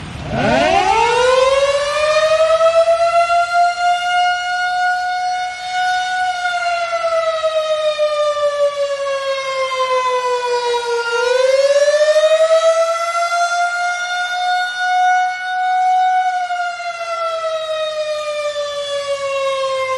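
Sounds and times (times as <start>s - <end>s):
warning siren wailing: 0.0s - 19.9s.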